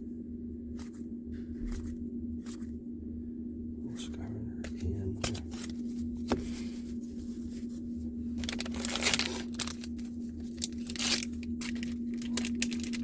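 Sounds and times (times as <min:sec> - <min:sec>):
steady low hum: 0:00.0 - 0:13.0
wrapper tearing and crinkling: 0:08.4 - 0:13.0.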